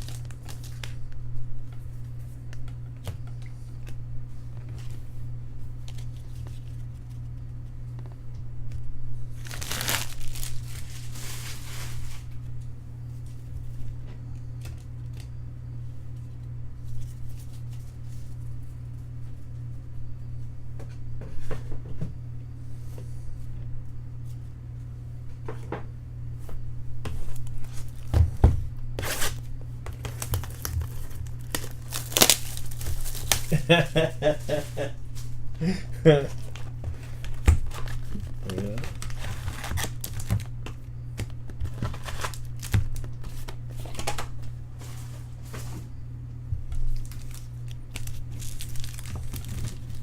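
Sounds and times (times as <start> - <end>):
wrapper crinkling: 0.0 - 1.0, 9.4 - 12.4, 29.1 - 34.8, 36.3 - 40.5, 41.6 - 44.2, 46.8 - 50.0
steady low hum: 0.0 - 50.0.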